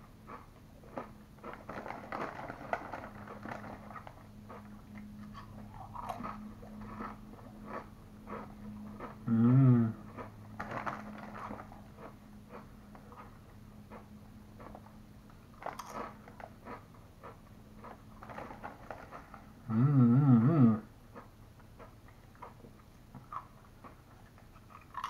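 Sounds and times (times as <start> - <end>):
crunching potato chips: 0.3 - 13.3, 14.6 - 19.6, 23.2 - 25.0
person humming: 9.2 - 10.0, 19.6 - 20.9.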